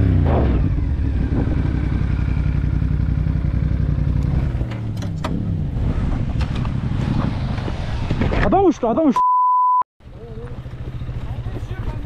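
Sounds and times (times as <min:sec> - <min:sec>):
motorcycle engine running: 0:00.0 - 0:05.8, 0:10.0 - 0:12.0.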